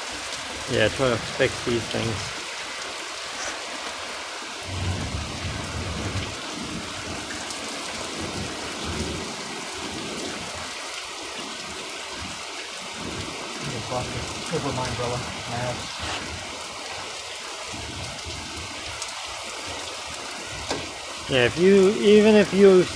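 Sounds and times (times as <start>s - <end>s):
steady rain: 0.0s - 22.9s
low thunder rumbling: 4.6s - 10.3s.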